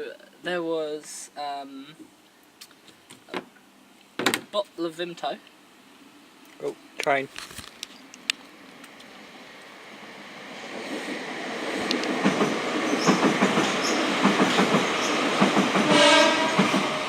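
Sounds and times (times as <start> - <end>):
train rumbling: 8.5 - 17.0.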